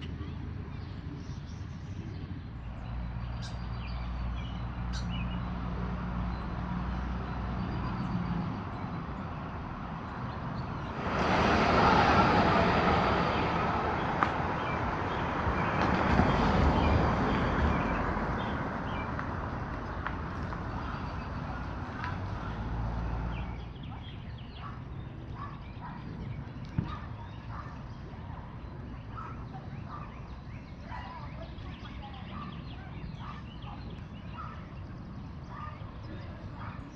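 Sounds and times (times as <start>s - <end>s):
birds chirping and calling: 0.0s - 11.2s, 12.5s - 36.9s
steady rushing noise: 10.6s - 17.0s.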